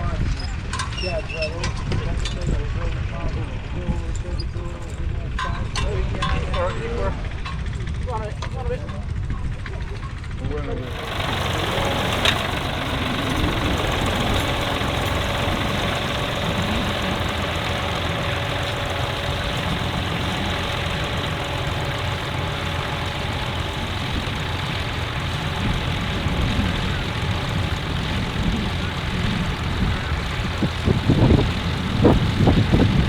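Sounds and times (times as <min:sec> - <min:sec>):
tractor engine running: 0:10.8 - 0:33.0.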